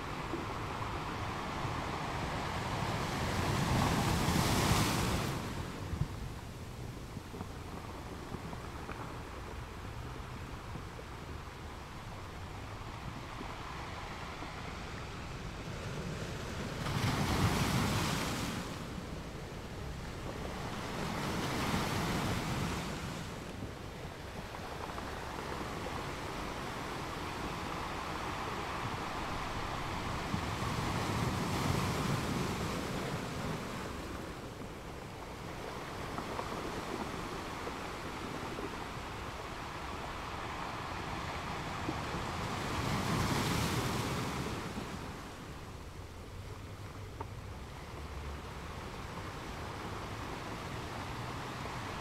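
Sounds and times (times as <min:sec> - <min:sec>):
ocean waves: 0:00.0 - 0:52.0.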